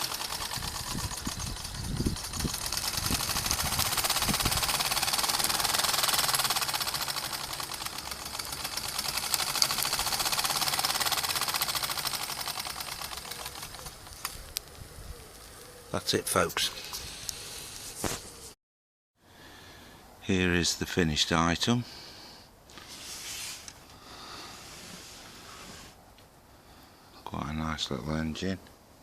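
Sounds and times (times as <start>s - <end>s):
steam engine exhaust beats: 0.0s - 14.0s
steam hiss: 22.9s - 26.0s.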